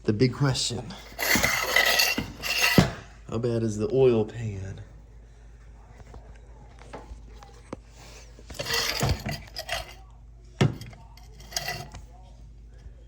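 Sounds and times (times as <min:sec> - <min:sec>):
metal clinks and clattering: 0:01.0 - 0:03.0, 0:08.5 - 0:10.0, 0:10.6 - 0:12.0.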